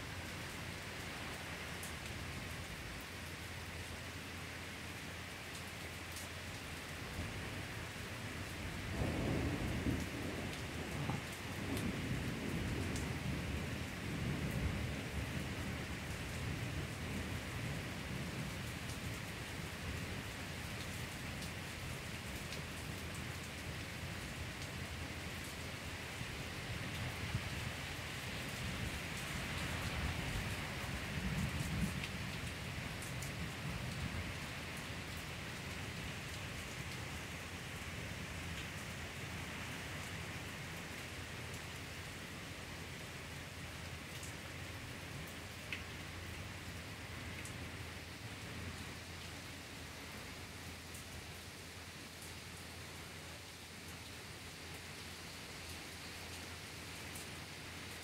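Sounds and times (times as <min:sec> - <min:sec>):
heavy rain pouring: 0:00.0 - 0:58.0
thunder rumbling: 0:08.8 - 0:14.8.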